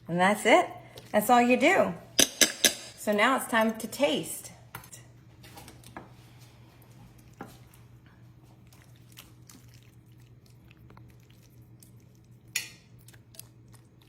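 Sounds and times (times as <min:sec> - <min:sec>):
person chewing: 0:06.8 - 0:14.0.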